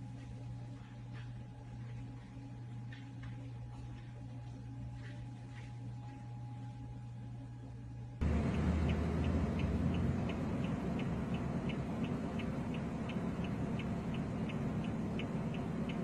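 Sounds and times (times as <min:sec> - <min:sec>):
car road and engine noise: 0:08.2 - 0:16.0
light regular ticking: 0:08.2 - 0:16.0.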